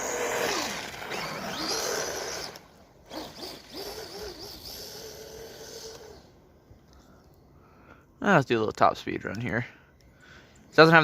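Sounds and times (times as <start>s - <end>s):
electric motor whining: 0.0s - 6.5s.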